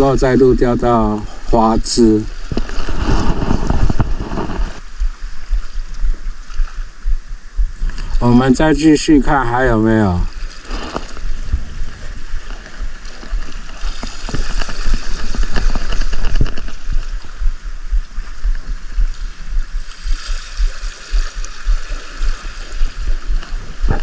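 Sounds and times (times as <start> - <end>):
seawater washing at shoreline: 0.0 - 24.0
wind buffeting microphone: 0.0 - 24.0.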